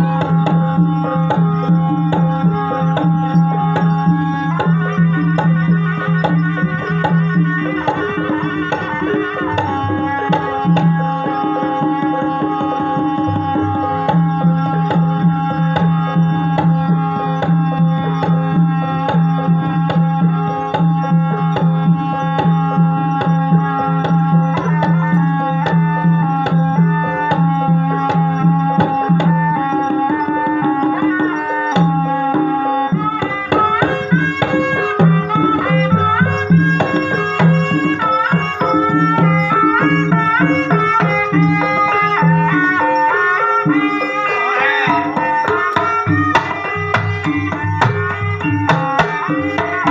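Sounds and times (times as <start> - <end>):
held melody line: 0.0 - 49.9
hand drums playing quick pattern: 19.0 - 49.9.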